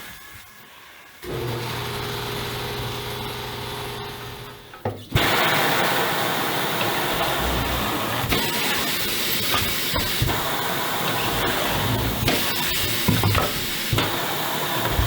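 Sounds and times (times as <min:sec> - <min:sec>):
compressed air hissing: 0:05.2 - 0:15.0
electric motor humming: 0:06.7 - 0:09.1, 0:10.3 - 0:15.0.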